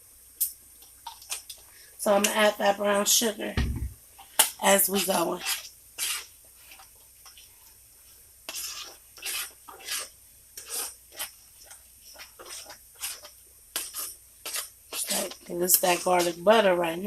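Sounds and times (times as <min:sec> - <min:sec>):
spoon stirring and scraping a pot: 0:00.8 - 0:03.2, 0:04.2 - 0:17.0.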